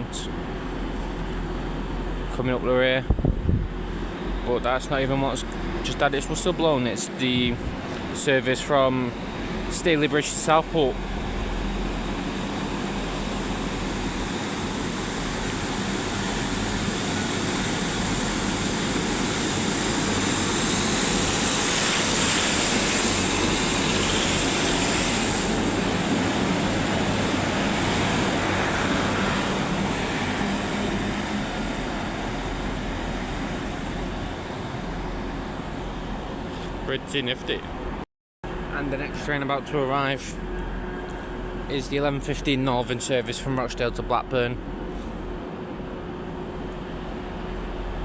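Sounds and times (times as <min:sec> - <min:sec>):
high whine: 0:00.0 - 0:37.8
train engine hum: 0:00.0 - 0:48.0
train wheels on rails: 0:03.6 - 0:36.8.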